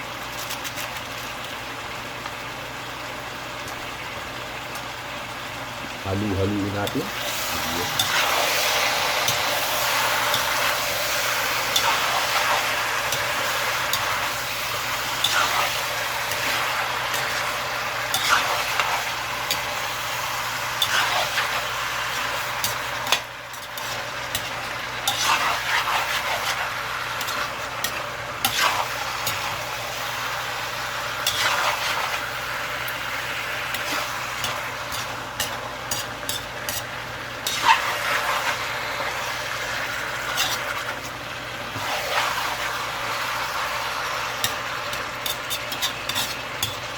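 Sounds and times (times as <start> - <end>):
chicken sizzling in a pan: 0.0 - 46.9
utensil scraping and knocking pan: 44.5 - 46.8.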